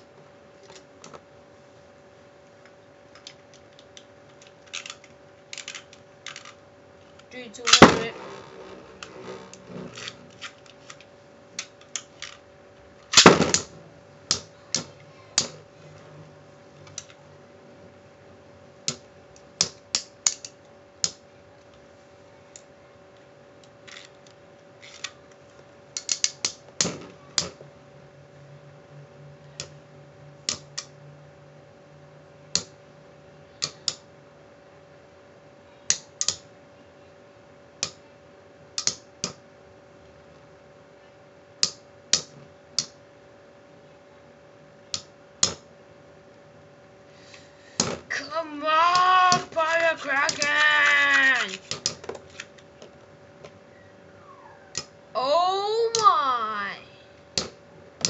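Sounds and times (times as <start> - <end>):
spinning tops clashing: 48.8 - 51.9.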